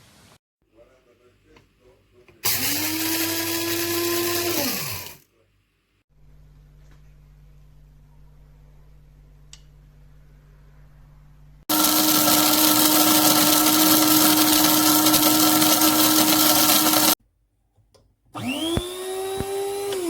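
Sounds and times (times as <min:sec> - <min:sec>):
coffee grinder motor whining: 0:02.4 - 0:05.2, 0:11.7 - 0:17.2, 0:18.4 - 0:20.0.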